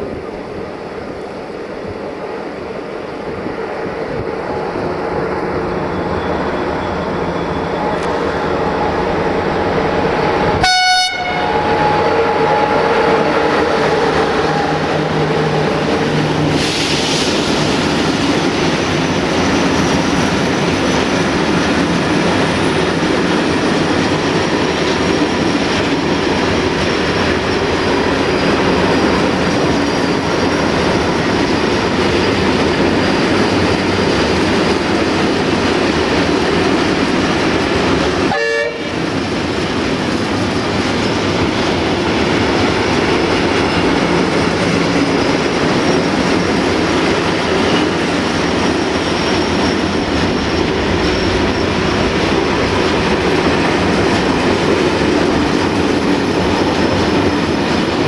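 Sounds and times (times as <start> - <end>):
locomotive horn: 10.5 - 12.7, 38.3 - 39.1.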